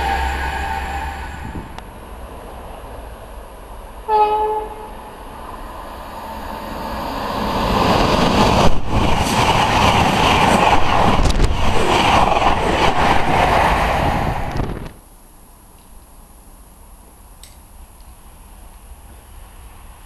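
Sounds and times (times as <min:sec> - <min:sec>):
train horn: 0:00.0 - 0:01.7, 0:04.0 - 0:05.1
train passing at speed: 0:00.0 - 0:15.0, 0:18.2 - 0:20.0.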